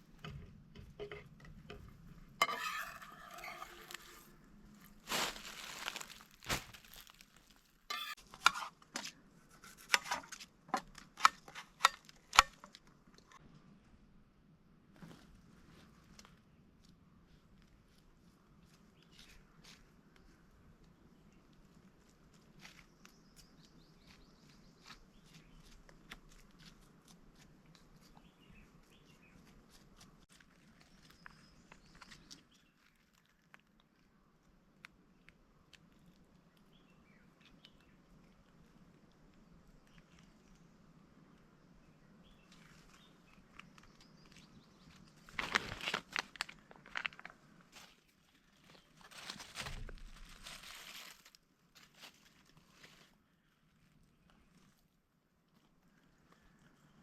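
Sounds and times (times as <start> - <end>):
utensils clinking on cookware: 2.4 - 4.2, 7.9 - 8.2.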